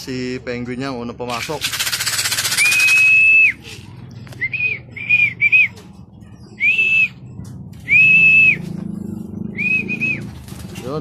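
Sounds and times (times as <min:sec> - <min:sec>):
person whistling high pitch: 0:02.6 - 0:03.6.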